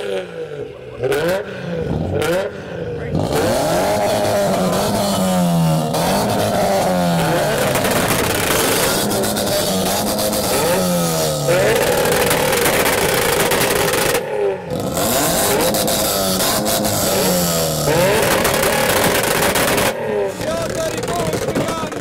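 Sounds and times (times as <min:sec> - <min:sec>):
car engines revving hard: 0:00.0 - 0:22.0.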